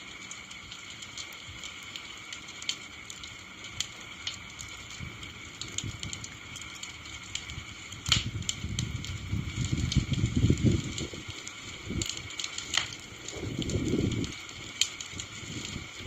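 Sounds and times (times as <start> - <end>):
campfire crackling: 0.0 - 16.0
fire popping: 0.0 - 16.0.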